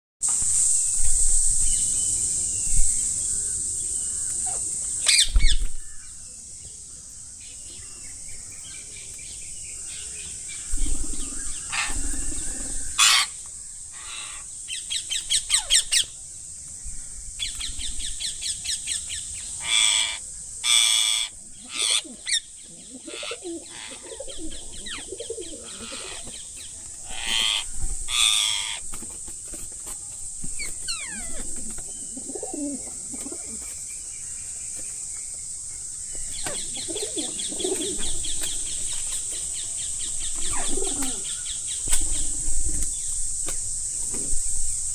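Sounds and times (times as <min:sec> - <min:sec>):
high-pitched insect drone: 0:10.2 - 0:14.6, 0:17.0 - 0:28.9, 0:35.8 - 0:44.9
parrots chirping: 0:11.7 - 0:13.4, 0:30.8 - 0:31.5
parrot harsh squawks: 0:13.0 - 0:13.3, 0:19.6 - 0:22.0
parrot squawks: 0:13.0 - 0:13.3.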